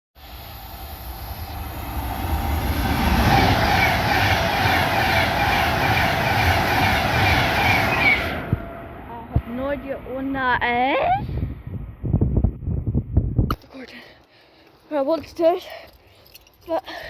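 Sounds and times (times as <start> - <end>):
high whine of train: 0.1 - 13.0
wheels rumbling on rail: 0.1 - 13.2.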